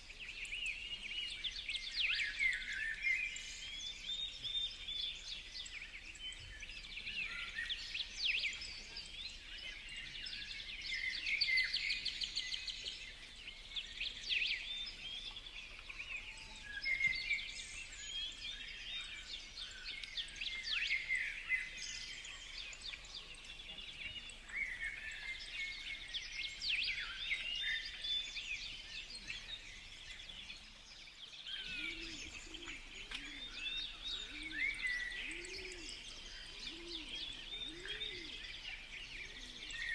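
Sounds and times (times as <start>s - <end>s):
birds chirping and calling: 31.5s - 39.9s.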